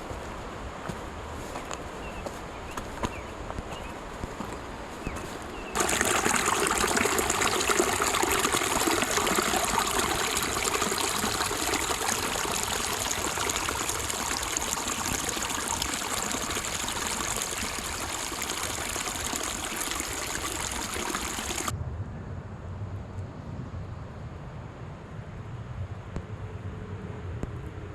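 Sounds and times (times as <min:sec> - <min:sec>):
mountain stream rushing: 0:05.2 - 0:21.7.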